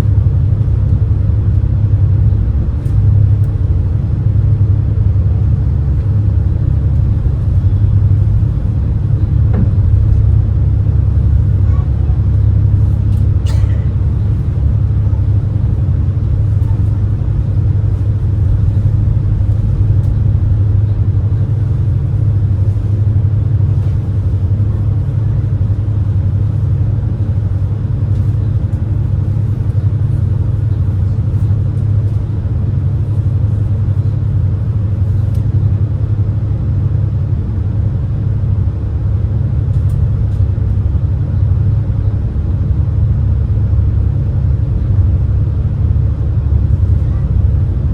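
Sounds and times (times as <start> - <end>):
boat engine rumble: 0.0 - 47.9.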